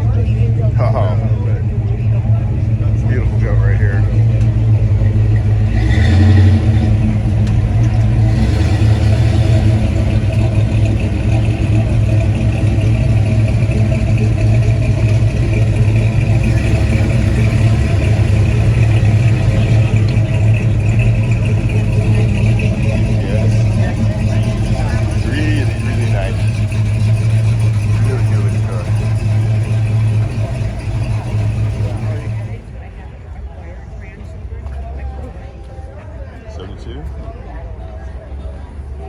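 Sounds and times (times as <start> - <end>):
car engine idling: 0.0 - 35.6.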